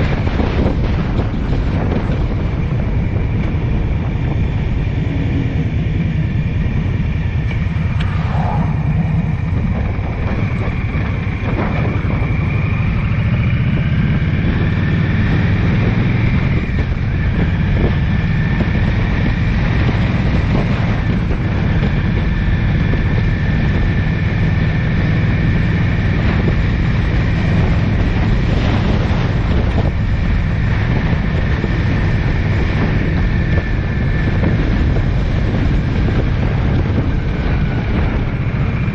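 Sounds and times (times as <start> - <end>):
road and wind noise: 0.0 - 38.9
faint high whine: 7.1 - 11.4.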